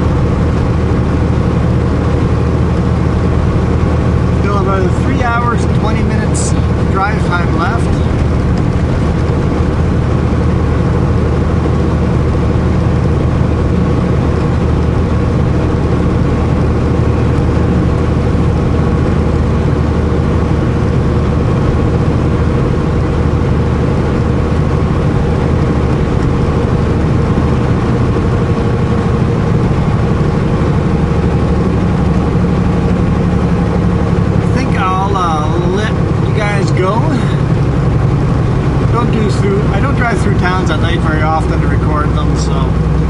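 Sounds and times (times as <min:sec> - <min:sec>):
diesel truck engine running: 0:00.0 - 0:43.0
road noise: 0:00.0 - 0:43.0.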